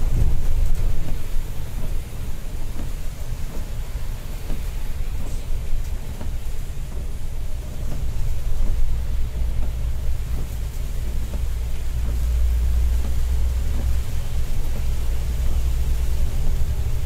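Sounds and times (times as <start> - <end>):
bus engine and road drone: 0.0 - 17.0.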